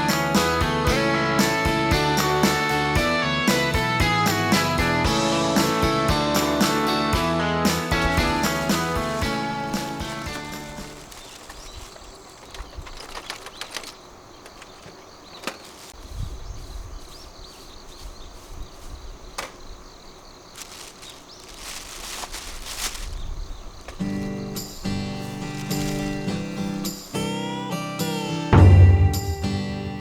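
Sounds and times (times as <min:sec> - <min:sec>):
background music: 0:00.0 - 0:11.0, 0:24.2 - 0:30.0
campfire crackling: 0:07.7 - 0:16.2, 0:20.2 - 0:27.9.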